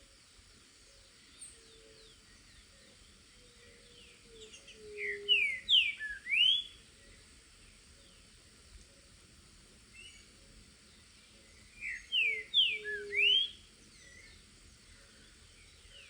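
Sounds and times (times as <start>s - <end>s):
bird singing slurred whistles: 4.4s - 6.8s, 11.8s - 14.3s.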